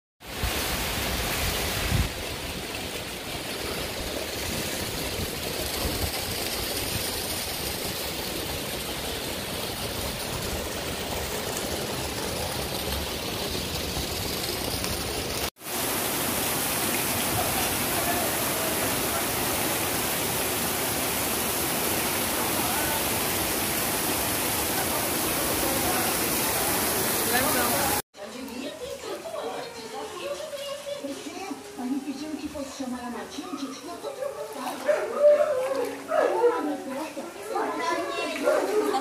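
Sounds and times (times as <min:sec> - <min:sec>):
heavy rain pouring: 0:00.2 - 0:28.0
floodwater rushing: 0:00.2 - 0:39.0.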